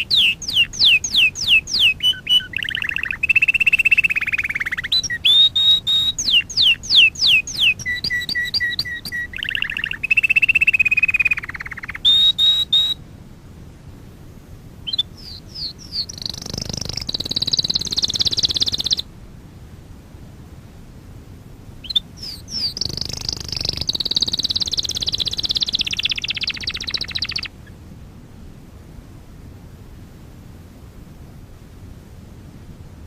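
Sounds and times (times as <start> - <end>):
canary singing: 0.0 - 13.0, 14.8 - 19.1, 21.8 - 27.7.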